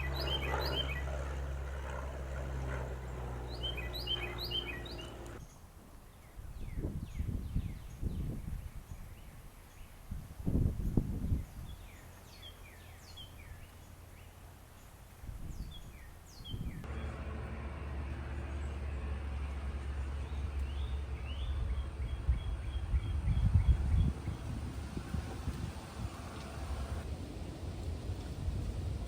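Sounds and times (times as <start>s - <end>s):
small birds chirping: 0.0s - 10.0s
wind rumble on microphone: 6.2s - 13.7s, 15.2s - 16.9s, 20.2s - 29.0s.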